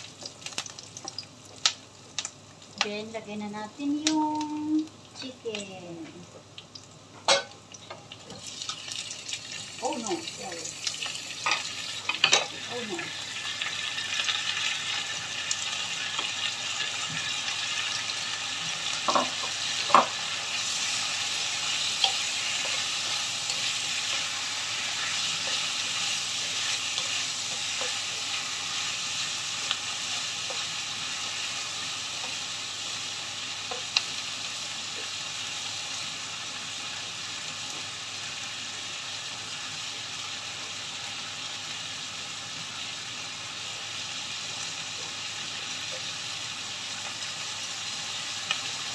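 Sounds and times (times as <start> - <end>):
food sizzling in a wok: 0.0 - 48.9.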